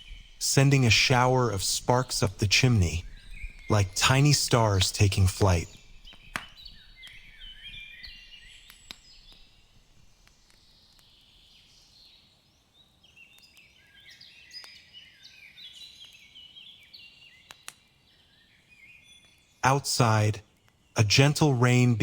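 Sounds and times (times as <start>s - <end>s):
songbirds chirping: 0.0s - 22.0s
sharp pops: 3.6s - 7.2s.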